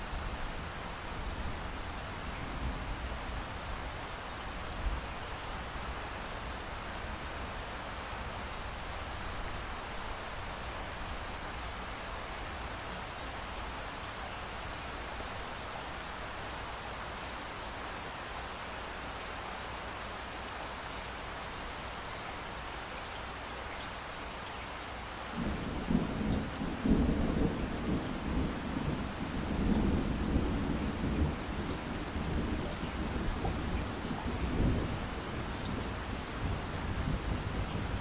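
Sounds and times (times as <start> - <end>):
rain hiss: 0.0 - 38.0
thunder rumbling: 25.4 - 38.0.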